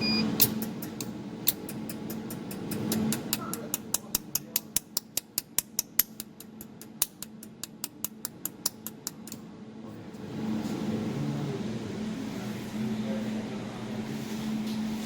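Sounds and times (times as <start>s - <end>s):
steady low hum: 0.0s - 15.0s
laser welder snapping pulses: 0.4s - 3.7s.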